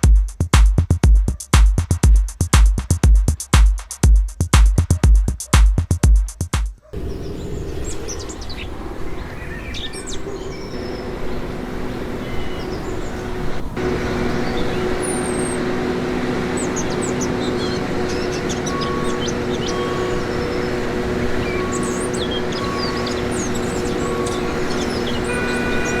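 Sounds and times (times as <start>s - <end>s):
birds chirping: 6.8s - 26.0s
steady mechanical hum: 7.0s - 26.0s.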